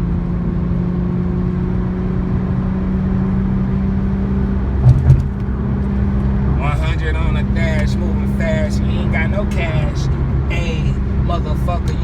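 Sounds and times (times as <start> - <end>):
car engine drone: 0.0 - 12.0
road noise: 0.0 - 12.0
short thumps: 4.8 - 5.6.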